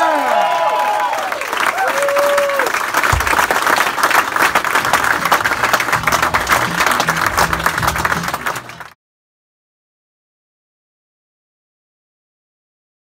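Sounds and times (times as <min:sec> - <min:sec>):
studio audience applauding: 0:00.0 - 0:09.0
low notes: 0:04.9 - 0:08.9.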